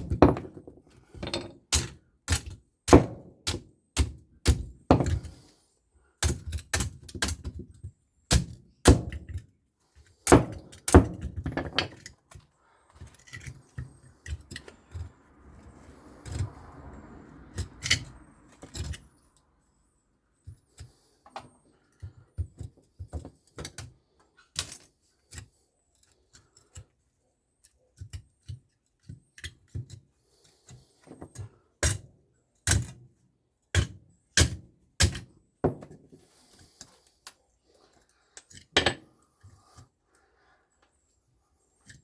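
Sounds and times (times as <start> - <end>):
metal parts and tools clanking: 0.0 - 1.9, 38.6 - 39.1.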